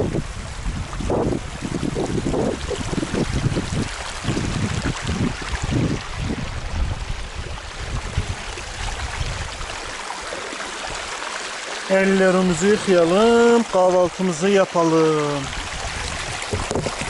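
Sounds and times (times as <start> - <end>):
wind buffeting microphone: 0.0 - 11.2, 15.4 - 17.0
stream water flowing: 0.0 - 17.0.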